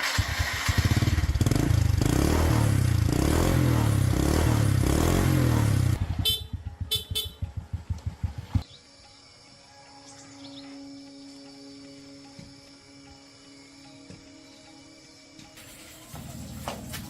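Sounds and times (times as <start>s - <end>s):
small petrol engine running: 0.0s - 8.6s.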